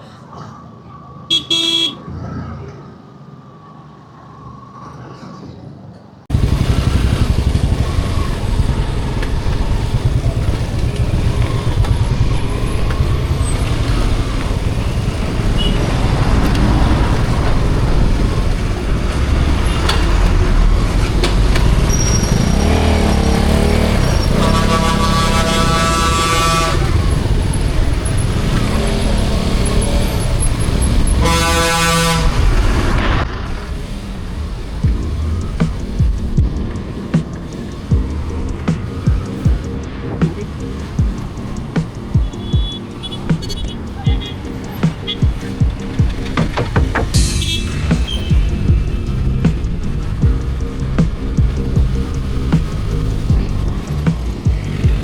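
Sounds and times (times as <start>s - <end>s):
vehicle horn toot: 1.3s - 2.1s, 15.6s - 15.9s, 24.2s - 27.0s, 31.1s - 32.4s, 42.3s - 44.4s, 47.2s - 48.4s
motorcycle engine rumble: 6.3s - 55.0s
wind noise: 32.2s - 55.0s.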